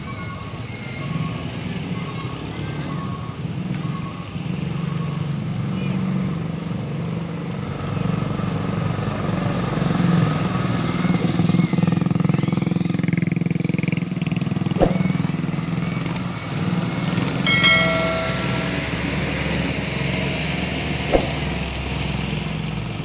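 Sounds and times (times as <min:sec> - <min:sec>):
sharp click: 0:16.0 - 0:16.3, 0:17.2 - 0:17.4.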